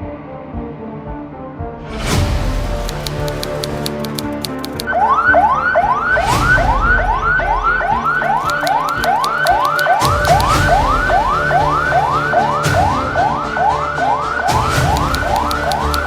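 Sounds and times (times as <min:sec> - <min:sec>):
electronic siren yelping: 0:04.7 - 0:16.0.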